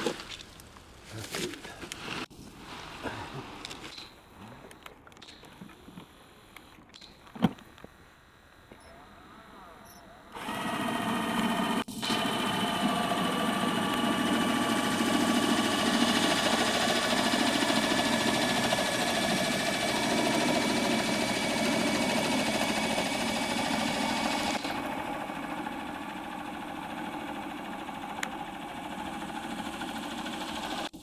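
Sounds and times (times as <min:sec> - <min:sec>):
cordless drill motor whining: 0:10.0 - 0:30.9.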